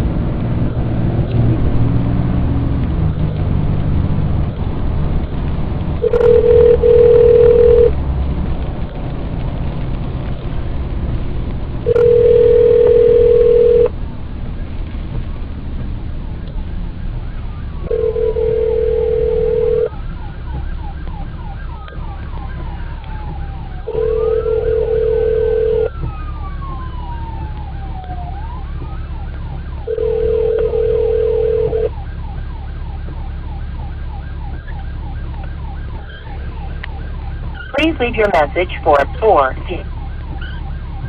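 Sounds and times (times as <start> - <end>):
low vehicle rumble: 0.0 - 41.0
siren wailing: 6.0 - 7.9, 16.9 - 41.0
telephone ringback tone: 6.0 - 7.9, 11.9 - 13.9, 17.9 - 19.9, 23.9 - 25.9, 29.9 - 31.9.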